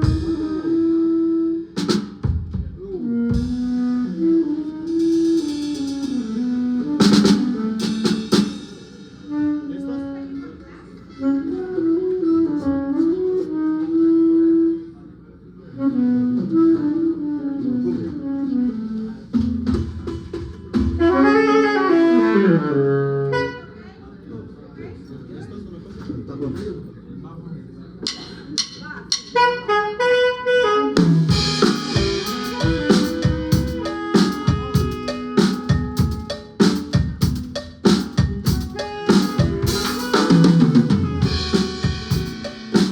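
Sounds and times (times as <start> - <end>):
drum kit beat: 0.0 - 0.6, 1.8 - 4.2, 4.8 - 9.3, 31.0 - 42.9
bass: 31.0 - 42.9.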